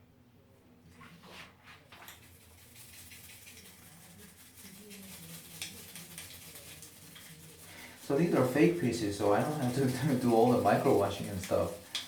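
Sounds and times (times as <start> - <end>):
toothbrush scrubbing plastic: 1.4 - 12.0.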